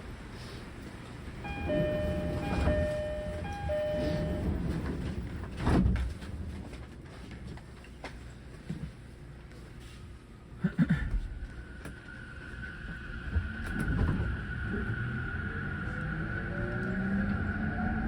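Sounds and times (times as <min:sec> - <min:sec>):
two-tone train door chime: 0:01.4 - 0:05.4
train doors sliding shut: 0:01.5 - 0:06.5.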